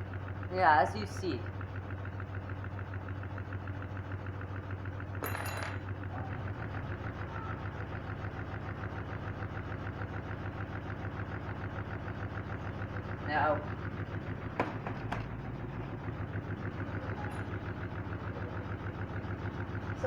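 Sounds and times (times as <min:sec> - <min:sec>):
washing machine spinning and rattling: 0:00.0 - 0:20.0
sharp metallic clink: 0:05.2 - 0:05.8.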